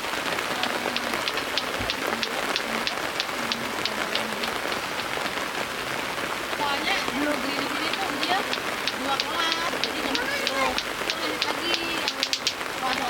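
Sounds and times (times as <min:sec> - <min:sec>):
rain falling: 0:00.0 - 0:13.0
short high-pitched ticks: 0:00.6 - 0:04.6, 0:07.8 - 0:13.0.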